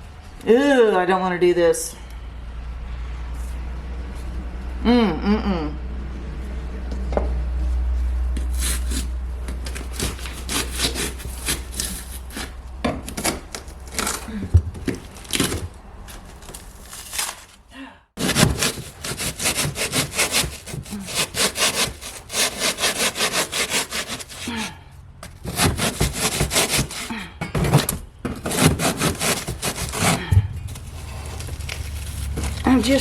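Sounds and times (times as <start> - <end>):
hand saw cutting: 8.4 - 14.3, 18.2 - 27.3, 28.3 - 30.3.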